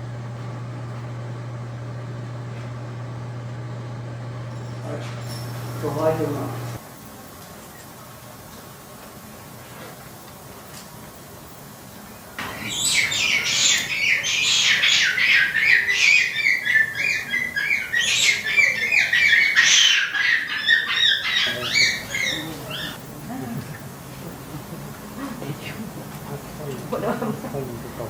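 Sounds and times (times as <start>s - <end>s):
bird chattering: 12.4s - 28.0s.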